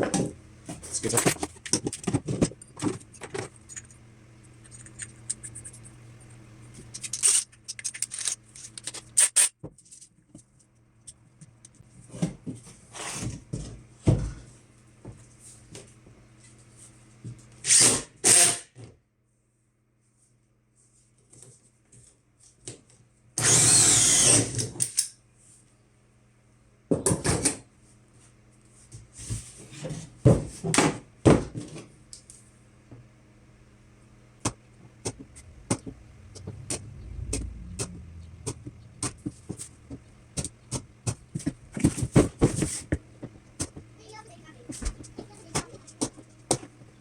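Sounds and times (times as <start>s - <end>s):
power drill cutting plastic: 23.4s - 24.7s.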